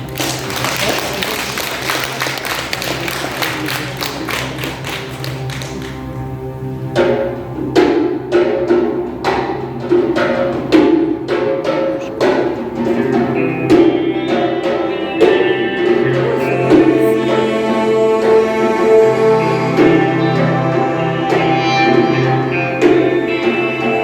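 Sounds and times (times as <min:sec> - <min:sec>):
live band playing: 0:00.0 - 0:24.0
pitched notes struck on beat: 0:06.9 - 0:23.6.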